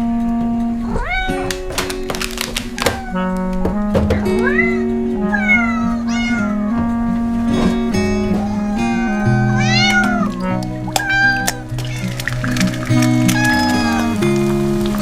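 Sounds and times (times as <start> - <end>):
cat meowing: 0.8 - 14.2.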